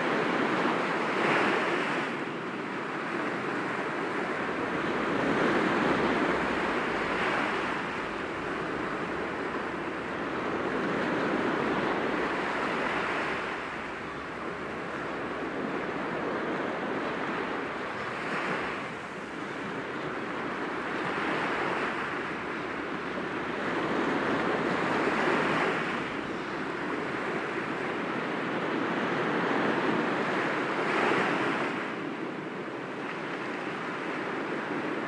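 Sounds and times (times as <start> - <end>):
waves breaking against rocks: 3.6 - 16.2.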